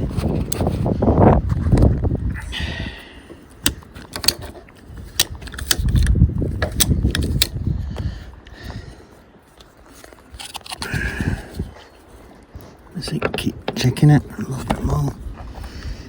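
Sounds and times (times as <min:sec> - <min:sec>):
wind on microphone: 0:00.0 - 0:09.1, 0:10.8 - 0:12.7, 0:14.2 - 0:16.0
ratchet strap clicking: 0:03.6 - 0:07.6.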